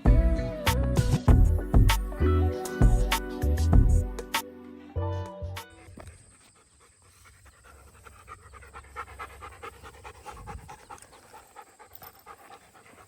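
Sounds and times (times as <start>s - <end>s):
dog panting fast: 5.8s - 13.0s.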